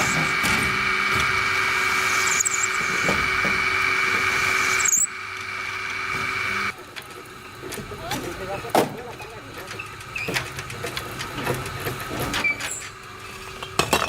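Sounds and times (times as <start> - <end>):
power tool whining: 0.0 - 7.4.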